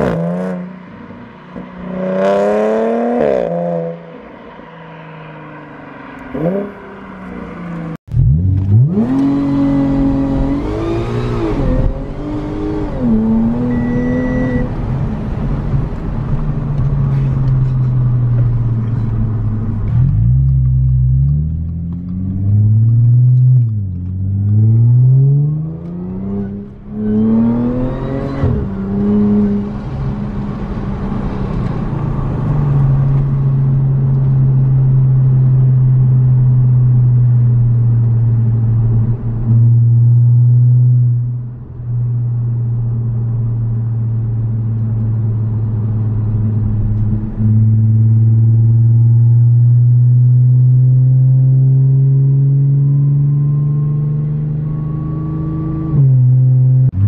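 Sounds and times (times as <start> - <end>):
car engine accelerating hard: 4.9 - 57.0.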